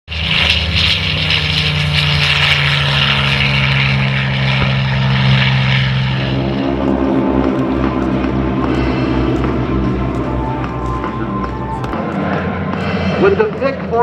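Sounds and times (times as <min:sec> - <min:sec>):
propeller aircraft engine drone: 0:00.1 - 0:14.0.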